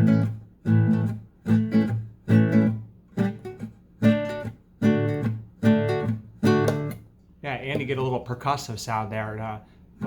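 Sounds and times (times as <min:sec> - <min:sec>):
muted acoustic guitar chords: 0:00.0 - 0:10.0.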